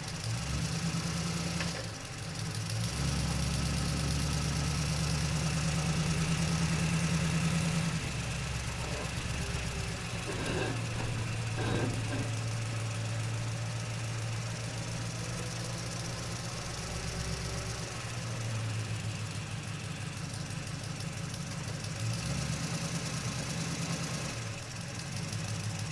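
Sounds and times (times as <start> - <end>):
engine idling: 0.0 - 25.9
faint whines: 7.3 - 13.5.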